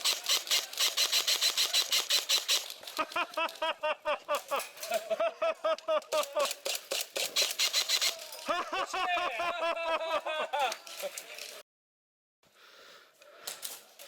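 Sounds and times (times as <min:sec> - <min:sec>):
airsoft guns firing: 0:00.0 - 0:03.2, 0:06.2 - 0:08.4.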